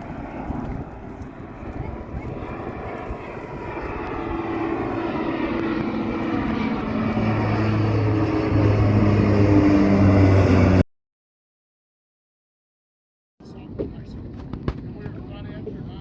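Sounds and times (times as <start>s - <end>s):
airplane engine noise: 0.0s - 10.8s, 13.4s - 16.0s
steady low hum: 0.0s - 10.8s.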